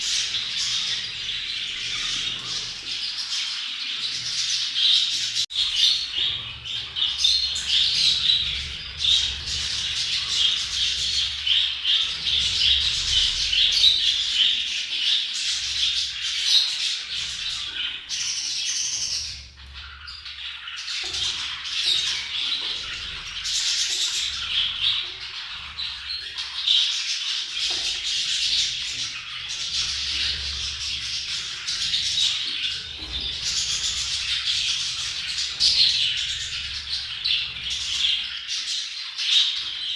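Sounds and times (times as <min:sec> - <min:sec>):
budgerigars chattering and warbling: 0:00.0 - 0:39.9.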